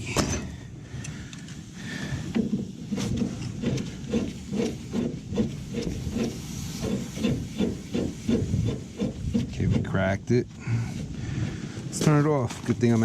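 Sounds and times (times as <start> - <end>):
pipe wrench creaking and grinding: 2.1 - 10.3.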